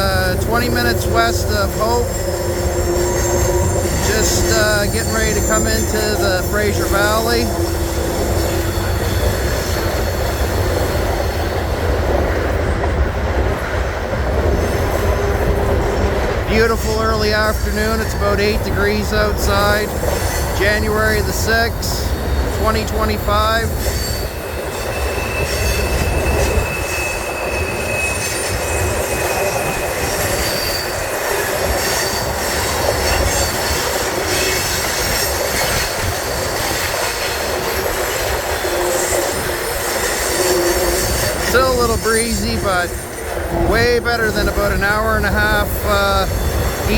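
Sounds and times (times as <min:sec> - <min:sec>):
train wheels rumbling on rails: 0:00.0 - 0:46.9
high-pitched wheel squeal: 0:01.5 - 0:11.2, 0:23.6 - 0:34.5.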